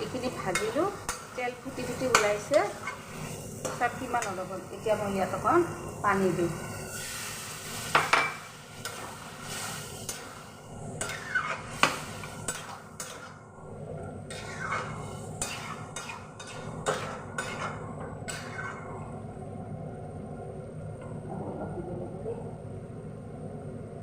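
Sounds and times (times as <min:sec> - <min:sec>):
metal spatula scraping a wok: 0:00.2 - 0:10.3, 0:11.0 - 0:13.4, 0:14.3 - 0:18.9.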